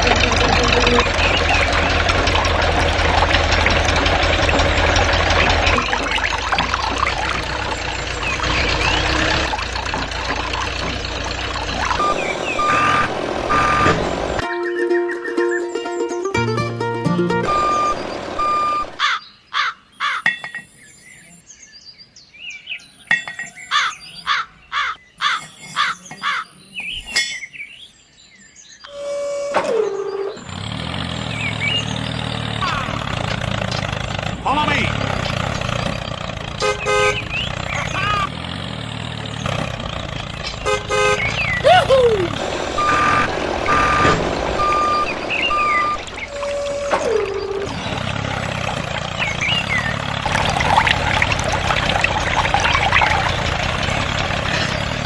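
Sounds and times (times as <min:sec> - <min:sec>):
vehicle motor running: 0:00.0 - 0:14.4, 0:16.4 - 0:19.0, 0:28.9 - 0:55.0
gliding whistle-like tones: 0:05.4 - 0:16.2, 0:41.4 - 0:48.0
reversing beeps: 0:11.9 - 0:14.0, 0:17.4 - 0:19.0, 0:42.8 - 0:47.8
horn toot: 0:12.0 - 0:14.6, 0:36.6 - 0:38.3, 0:40.6 - 0:47.8
bird calling loudly: 0:17.5 - 0:20.5, 0:23.7 - 0:27.2
faint small-bird chirps: 0:25.2 - 0:29.0.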